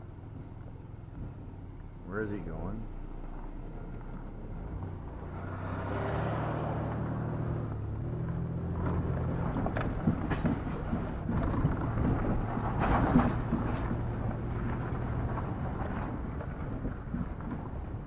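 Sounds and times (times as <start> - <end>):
engine and road noise inside vehicle: 0.0 - 18.0
rattles and knocks: 8.7 - 18.0.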